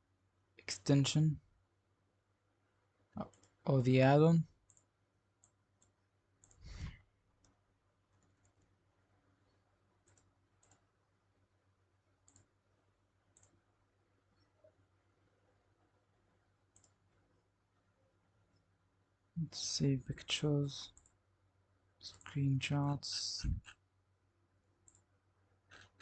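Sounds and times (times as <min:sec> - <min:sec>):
computer mouse clicks: 0:03.2 - 0:03.6, 0:04.6 - 0:06.8, 0:07.4 - 0:08.7, 0:10.0 - 0:11.0, 0:12.2 - 0:12.6, 0:13.3 - 0:13.6, 0:16.7 - 0:17.1, 0:20.9 - 0:21.2, 0:24.8 - 0:26.0.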